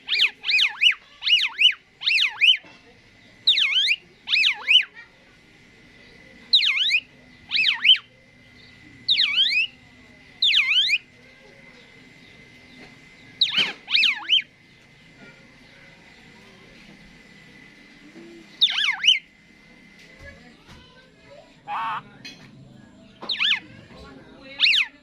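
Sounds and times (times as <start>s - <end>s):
starling downward-sweeping calls: 0.0s - 5.2s, 5.8s - 16.4s, 18.5s - 19.4s, 21.6s - 22.2s, 23.1s - 25.0s.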